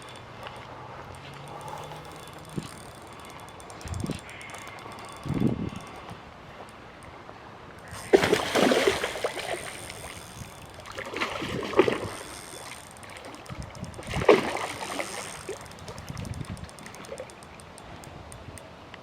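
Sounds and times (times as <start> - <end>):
fish splashing in water: 7.8 - 17.3.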